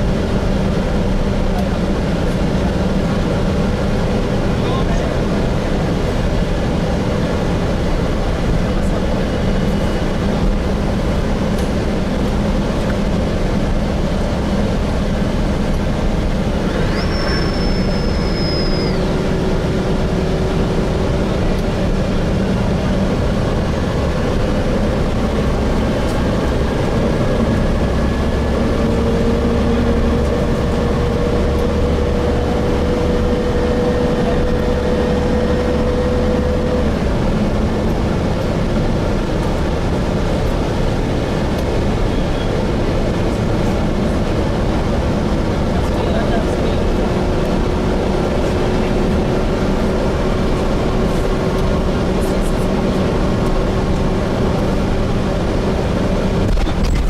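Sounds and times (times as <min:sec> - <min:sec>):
bus diesel engine and road noise: 0:00.0 - 0:57.0
whine rising in pitch: 0:15.7 - 0:21.2
brief high squeal: 0:16.6 - 0:19.2.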